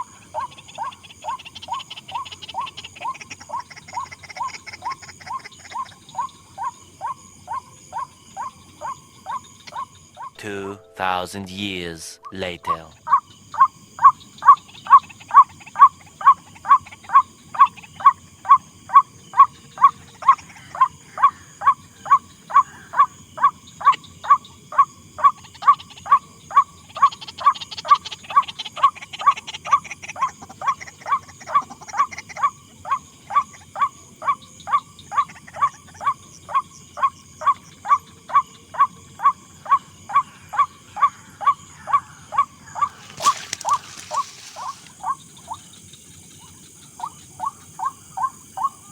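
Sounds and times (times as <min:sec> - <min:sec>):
bird harsh repeated call: 0:40.5 - 0:45.6.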